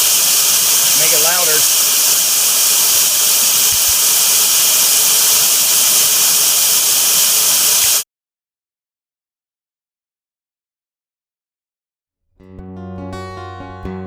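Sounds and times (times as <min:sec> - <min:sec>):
gas hissing from a leak: 0:00.0 - 0:08.0.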